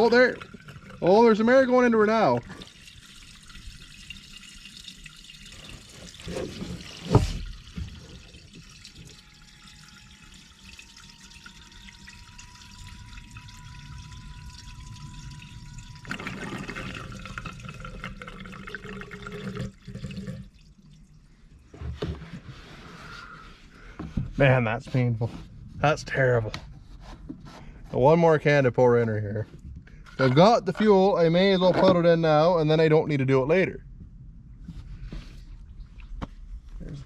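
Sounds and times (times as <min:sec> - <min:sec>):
fuel trickling into a tank: 0:00.0 - 0:24.0
faint thin rising tone: 0:09.0 - 0:17.2.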